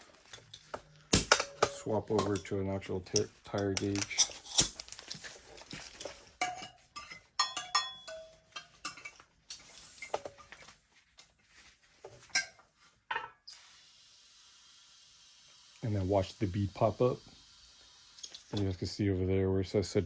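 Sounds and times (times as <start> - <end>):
metal hand tools clinking: 0.3 - 10.1.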